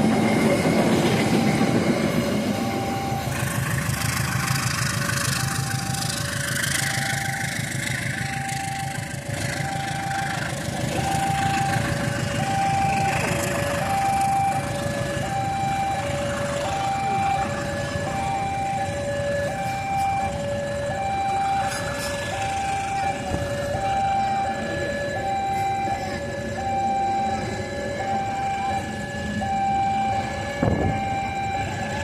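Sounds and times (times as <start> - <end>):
two-tone hi-lo warning alarm: 0.0 - 32.0
vehicle engines running: 0.0 - 32.0.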